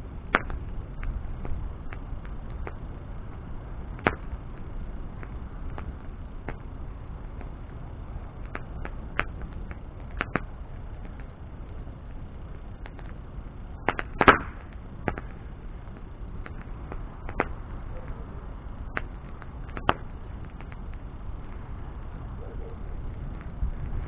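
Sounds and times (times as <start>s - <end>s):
bonfire rushing: 0.0s - 24.0s
fire crackles and pops: 0.0s - 24.0s.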